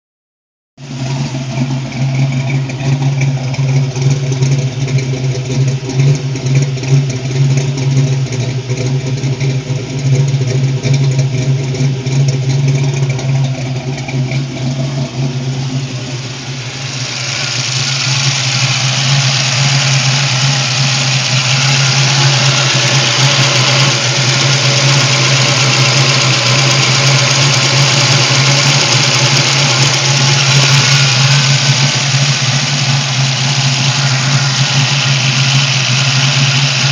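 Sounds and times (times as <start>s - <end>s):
car engine idling: 0.8s - 36.9s
loud steady hiss: 15.9s - 36.9s.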